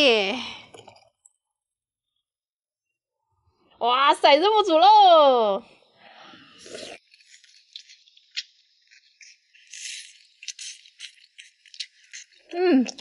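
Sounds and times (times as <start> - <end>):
crunchy chewing: 6.5 - 13.0.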